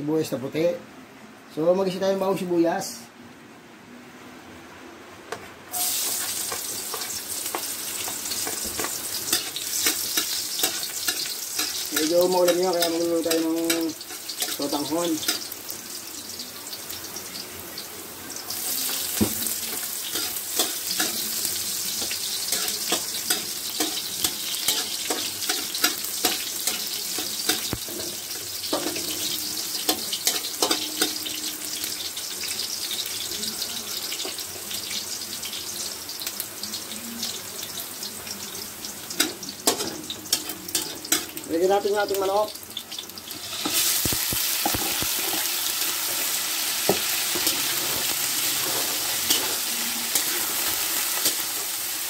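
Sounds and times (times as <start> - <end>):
onion sizzling in hot oil: 5.7 - 52.0
metal spatula scraping a wok: 43.3 - 51.5.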